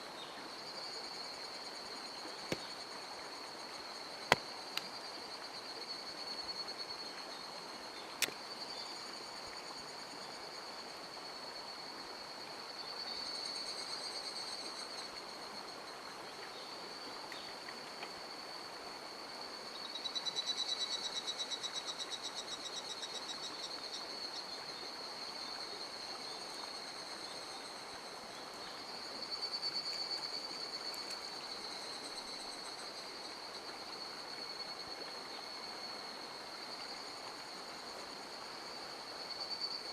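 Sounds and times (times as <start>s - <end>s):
insects buzzing and trilling: 0.0s - 39.9s.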